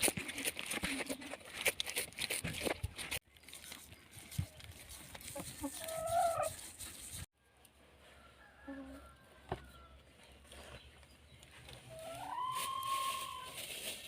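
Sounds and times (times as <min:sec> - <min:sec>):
chicken wavering call: 0:11.9 - 0:13.6.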